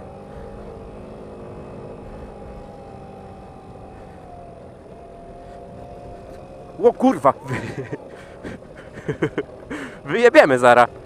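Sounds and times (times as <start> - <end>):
small scooter engine running: 0.0 - 11.0.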